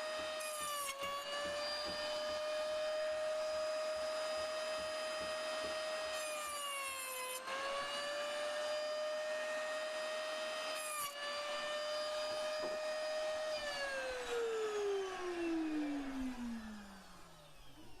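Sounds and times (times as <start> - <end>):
electric saw whining: 0.0 - 18.0
saw cutting wood: 0.0 - 18.0.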